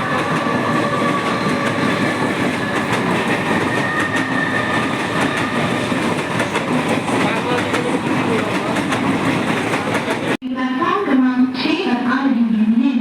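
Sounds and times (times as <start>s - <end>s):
train rumble: 0.0s - 10.4s
train wheels clattering over rail joints: 0.1s - 10.4s.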